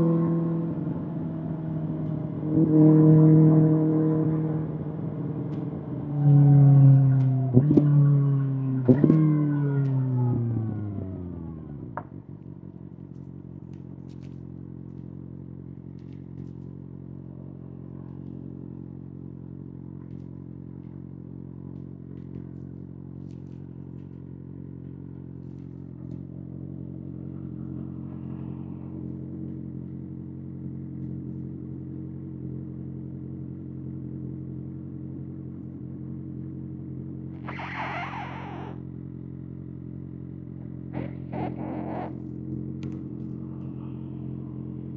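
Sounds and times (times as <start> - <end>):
motorcycle engine idling: 10.7 - 44.9
brief rasping noise: 37.4 - 38.8.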